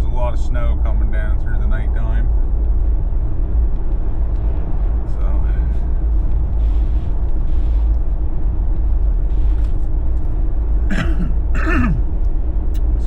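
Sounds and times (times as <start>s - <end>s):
car driving on snowy road: 2.2s - 13.0s
person vocal sound: 10.9s - 12.0s.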